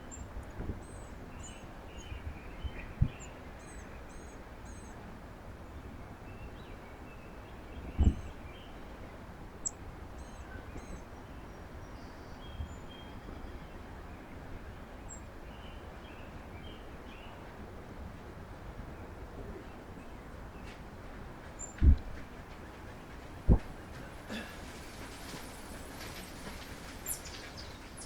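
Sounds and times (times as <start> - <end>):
low outdoor rumble: 16.7 - 28.0
small birds chirping: 21.4 - 28.0.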